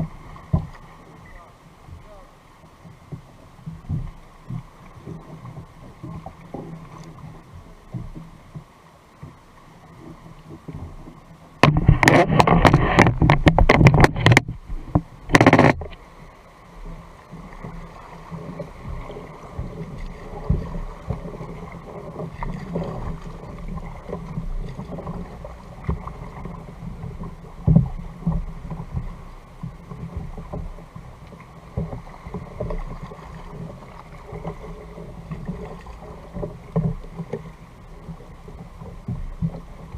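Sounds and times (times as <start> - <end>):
water knocking against kayak hull: 0.0 - 2.2, 2.9 - 9.4, 10.0 - 16.0, 17.4 - 39.9
rapid clicks and rustling: 11.6 - 16.0.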